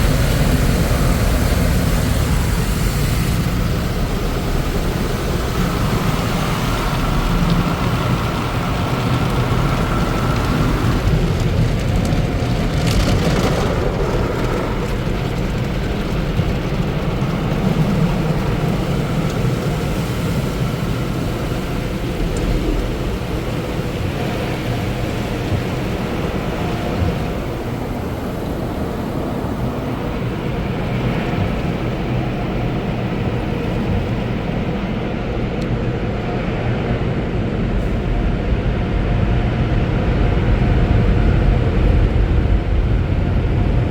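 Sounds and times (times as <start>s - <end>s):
water spray drumming on car: 0.0s - 34.7s
low machinery rumble: 0.0s - 43.9s.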